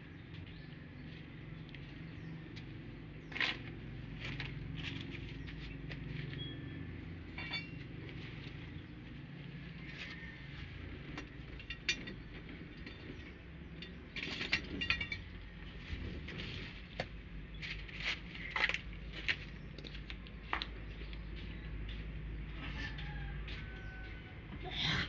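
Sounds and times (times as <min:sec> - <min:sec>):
low steady hum: 0:00.0 - 0:25.0
metal tool clicks and clinks: 0:07.4 - 0:07.9.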